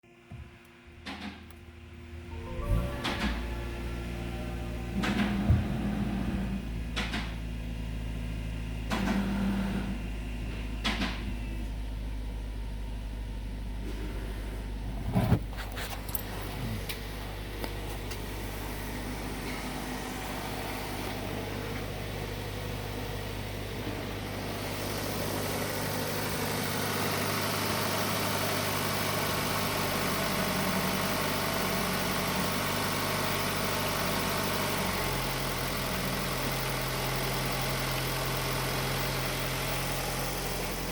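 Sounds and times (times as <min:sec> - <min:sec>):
car engine idling: 0:01.0 - 0:40.9
clunks: 0:02.3 - 0:07.6, 0:08.8 - 0:11.8, 0:13.8 - 0:24.6.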